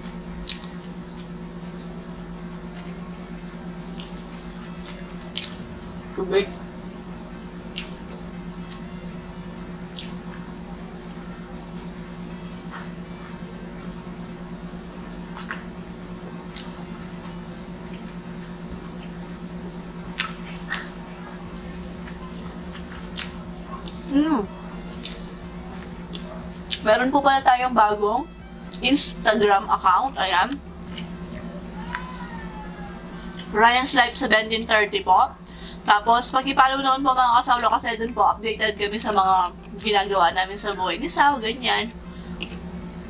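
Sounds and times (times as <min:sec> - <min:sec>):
low hum: 0:00.0 - 0:43.0
closed-mouth chewing: 0:02.7 - 0:06.1, 0:09.9 - 0:10.4, 0:20.0 - 0:24.1, 0:24.8 - 0:26.8.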